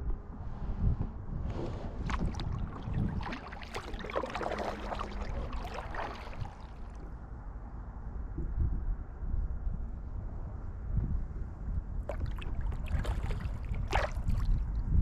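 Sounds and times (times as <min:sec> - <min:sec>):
kayak paddle splashing: 0:01.8 - 0:07.1, 0:12.1 - 0:14.6.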